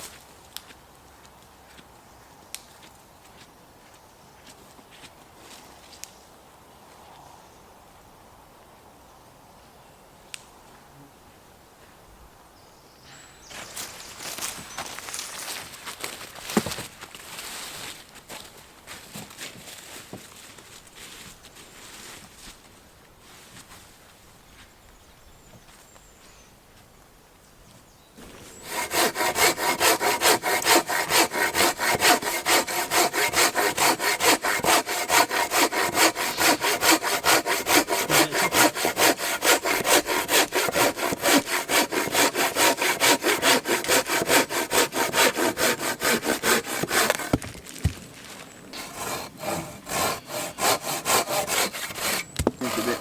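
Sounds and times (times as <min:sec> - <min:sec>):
hand saw cutting log: 0:28.2 - 0:47.6, 0:48.8 - 0:53.0.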